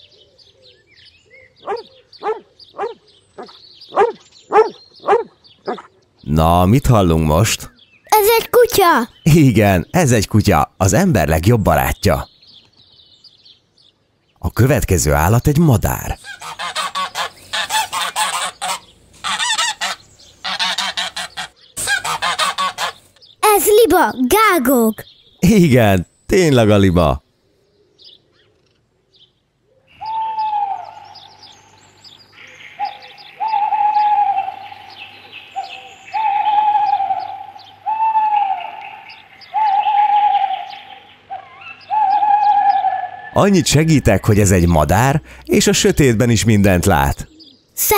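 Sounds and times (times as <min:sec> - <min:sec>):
small birds chirping: 0:00.0 - 0:47.9
goose honking: 0:16.2 - 0:23.0
owl hooting: 0:29.9 - 0:31.4, 0:32.4 - 0:43.6.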